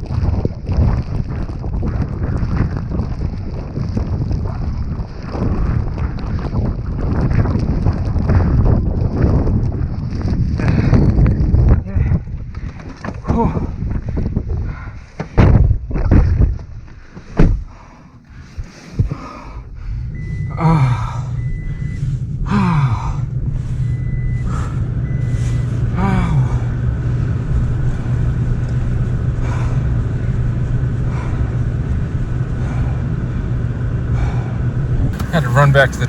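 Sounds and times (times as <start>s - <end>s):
knocks and thumps: 15.2s - 16.7s
truck engine starting and idling: 19.4s - 36.0s
dashboard warning chime beeps: 20.2s - 20.6s, 23.8s - 25.7s, 35.2s - 36.0s.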